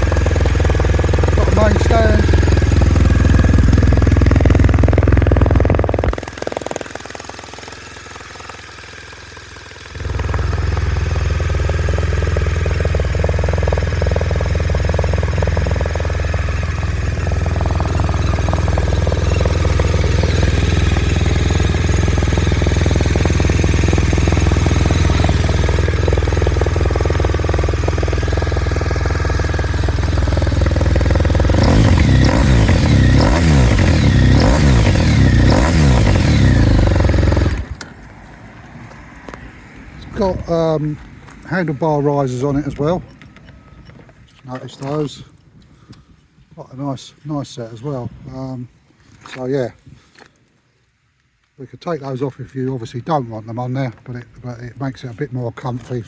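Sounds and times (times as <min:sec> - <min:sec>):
motorcycle engine idling: 0:00.0 - 0:38.4
motorcycle throttle blips: 0:00.0 - 0:45.1.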